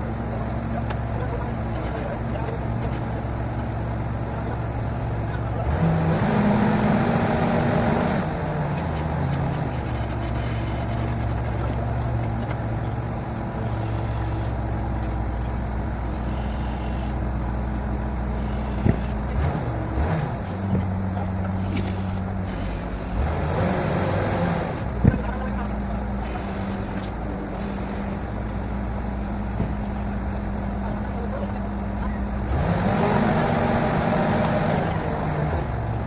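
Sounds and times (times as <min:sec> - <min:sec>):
drilling rig engine hum: 0:00.0 - 0:36.0.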